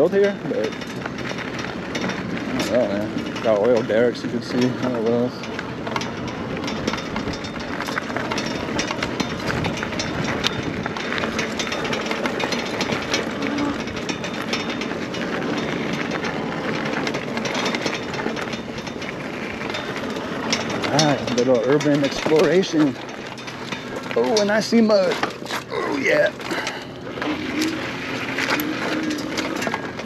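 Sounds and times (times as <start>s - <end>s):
rattling clicks from bike frame: 0.0s - 30.0s.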